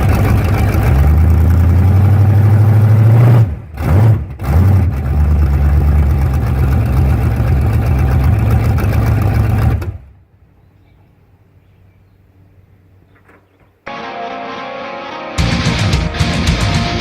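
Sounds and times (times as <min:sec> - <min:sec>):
car engine rumbling: 0:00.0 - 0:10.6.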